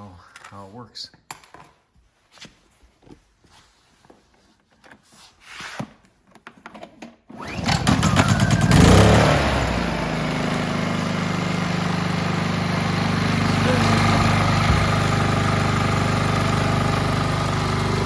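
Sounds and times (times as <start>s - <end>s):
generator engine running: 7.4s - 18.0s.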